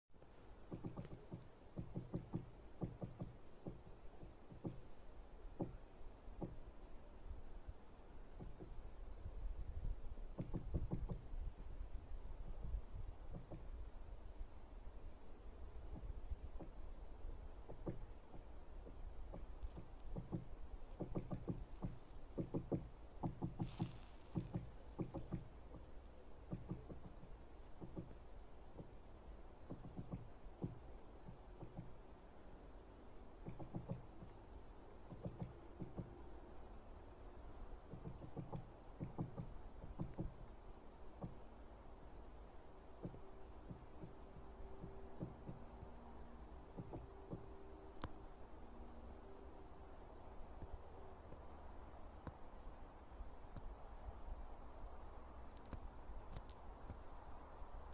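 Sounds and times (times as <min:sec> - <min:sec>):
woodpecker pecking on wood: 0:00.6 - 0:06.7, 0:08.3 - 0:08.8, 0:10.2 - 0:11.5, 0:12.4 - 0:13.9, 0:15.7 - 0:32.2, 0:33.2 - 0:36.7, 0:37.5 - 0:42.1, 0:42.8 - 0:48.2.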